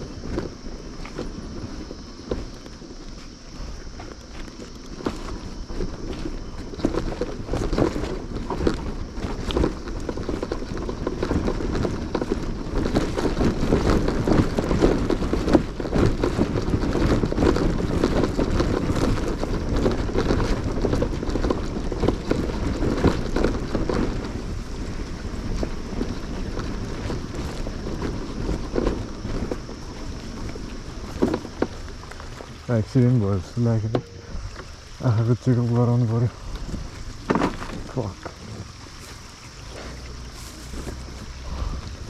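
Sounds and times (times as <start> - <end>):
motorcycle engine: 0.0 - 42.0
wind noise: 0.0 - 42.0.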